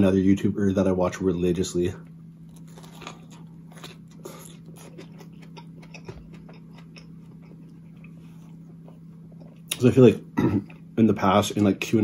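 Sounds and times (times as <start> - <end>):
steady low hum: 0.0 - 12.0
chewing sandwich crunches: 2.4 - 9.9.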